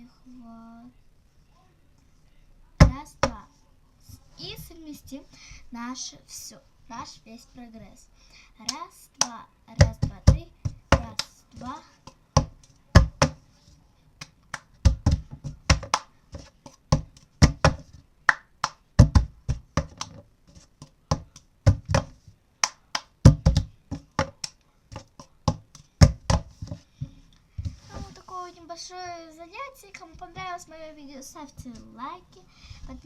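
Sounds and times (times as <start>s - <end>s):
plastic cup hitting a book: 9.8s - 13.4s, 14.5s - 27.9s
hand claps: 14.2s - 16.1s, 17.1s - 19.2s, 22.6s - 26.4s.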